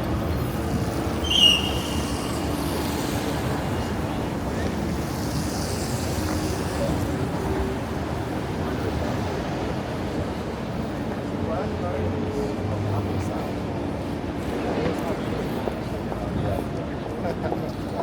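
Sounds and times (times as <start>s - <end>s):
city traffic rumble: 0.0s - 18.0s
short high squeal: 1.2s - 2.8s.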